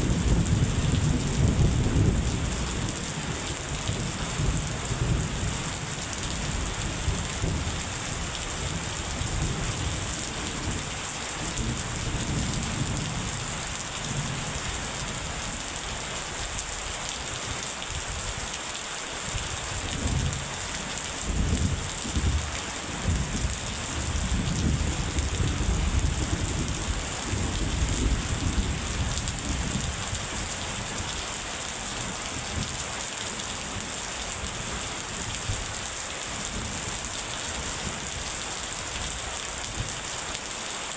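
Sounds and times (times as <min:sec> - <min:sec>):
heavy rain hissing: 0:00.0 - 0:40.9
thunder rumbling: 0:21.3 - 0:30.0.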